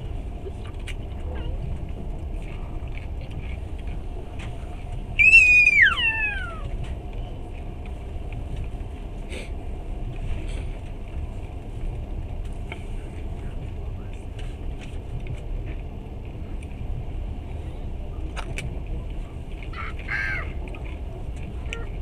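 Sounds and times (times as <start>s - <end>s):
train wheels rumbling on rails: 0.0s - 22.0s
high-pitched squeal: 5.2s - 6.6s.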